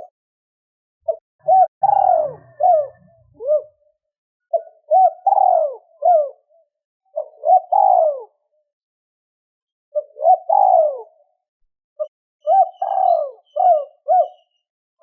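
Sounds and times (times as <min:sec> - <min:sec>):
dove cooing: 0:01.1 - 0:08.4, 0:09.9 - 0:11.3, 0:12.0 - 0:14.6.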